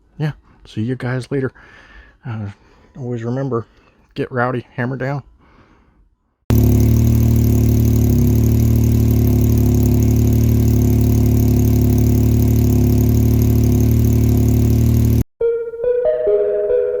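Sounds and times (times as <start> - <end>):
engine running through exhaust: 6.5 - 15.3.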